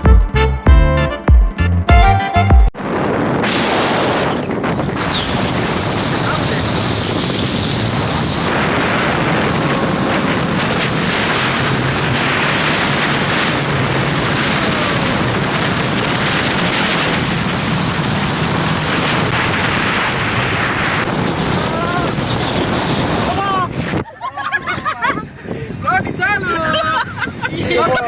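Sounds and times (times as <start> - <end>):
wind buffeting microphone: 2.8 - 28.0.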